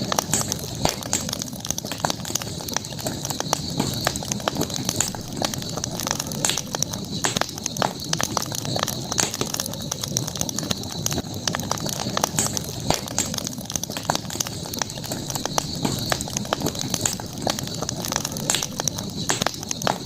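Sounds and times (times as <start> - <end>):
crackling wood snapping: 0.0 - 20.0
flame rushing: 0.0 - 20.0.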